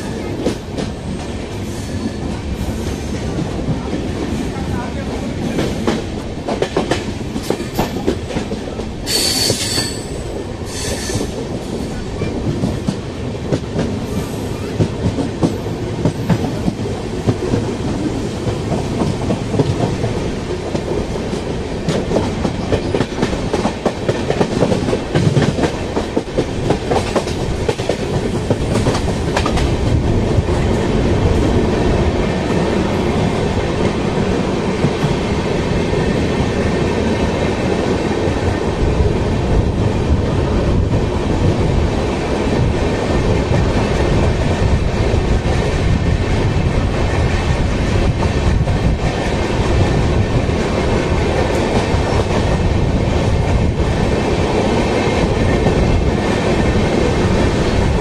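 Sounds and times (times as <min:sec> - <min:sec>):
train wheels clattering: 0:05.4 - 0:31.7
high wheel squeals: 0:09.1 - 0:11.3.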